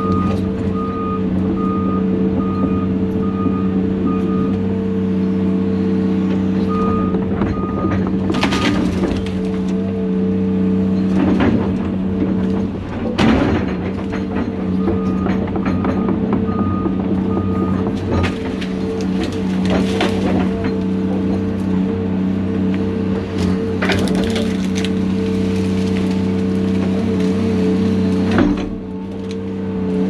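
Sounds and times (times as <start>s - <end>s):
motion alarm beeping: 0.0s - 4.6s
diesel engine running: 0.0s - 30.0s.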